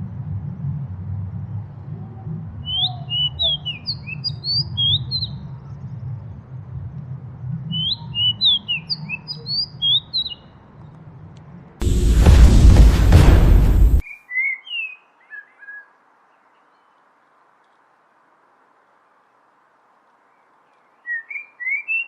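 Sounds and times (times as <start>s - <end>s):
steady low rumble: 11.8s - 14.0s.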